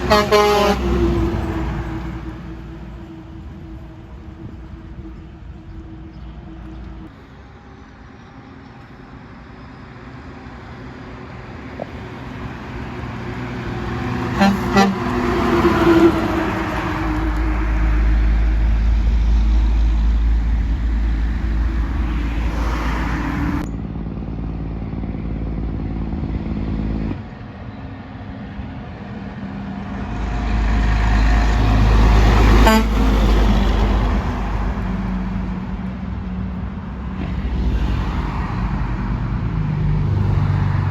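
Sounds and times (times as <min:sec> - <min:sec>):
truck air horn blasts: 0:00.0 - 0:02.6, 0:14.3 - 0:18.2, 0:32.2 - 0:33.8
trucks passing with engine rumble: 0:00.0 - 0:40.9.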